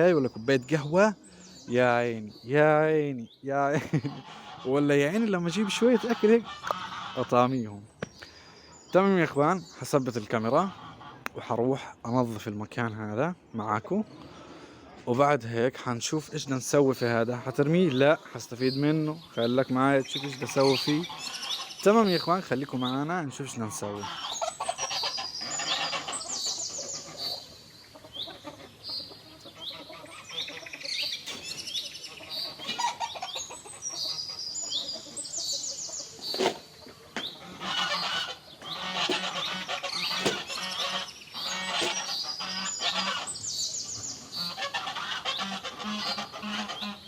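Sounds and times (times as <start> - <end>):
poultry chirping calls: 0.0 - 47.0
other fowl calls: 3.8 - 7.7, 10.4 - 11.9, 17.0 - 47.0
sharp knocks: 40.2 - 40.5.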